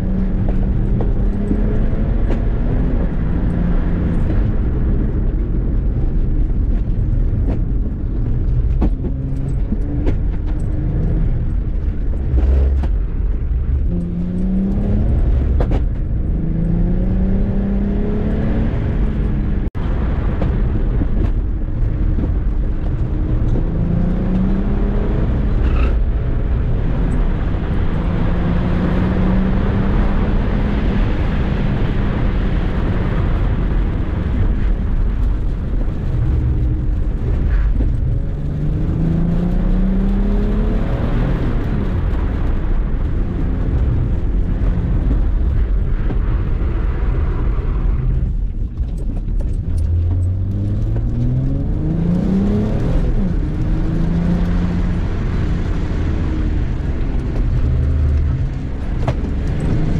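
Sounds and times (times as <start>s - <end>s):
road and wind noise: 0.0s - 59.9s
diesel engine revving: 49.6s - 59.9s.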